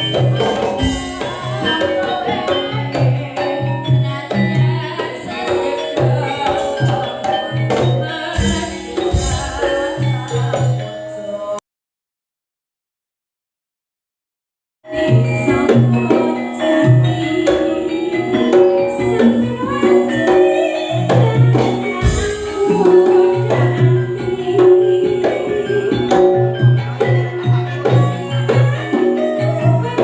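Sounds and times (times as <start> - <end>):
struck melodic notes: 0.0 - 11.2
drums and percussion beat: 0.0 - 11.6, 14.9 - 30.0.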